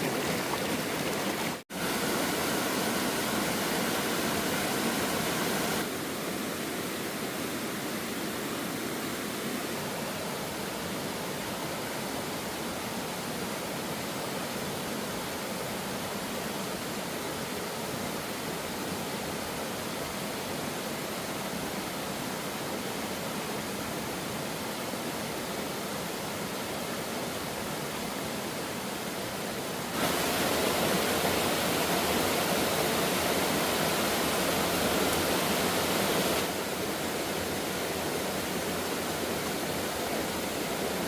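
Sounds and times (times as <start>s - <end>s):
waterfall rushing: 0.0s - 9.8s, 28.6s - 41.0s.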